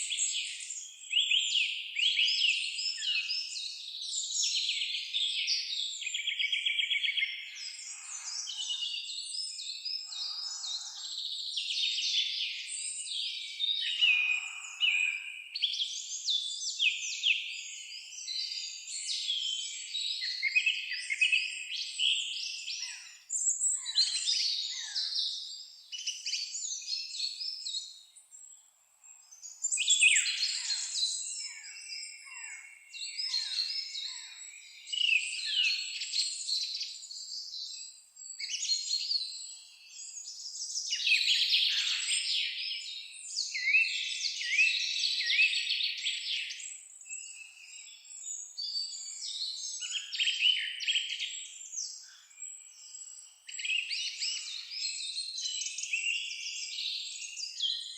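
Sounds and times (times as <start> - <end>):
songbirds chirping and trilling: 0.0 - 57.9.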